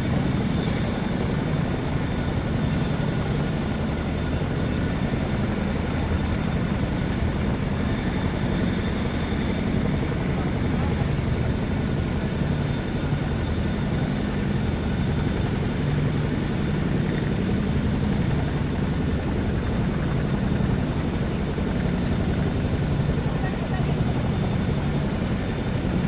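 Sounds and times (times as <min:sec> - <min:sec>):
aircraft engine rumble: 0:00.0 - 0:26.0
high engine whine: 0:00.0 - 0:26.0.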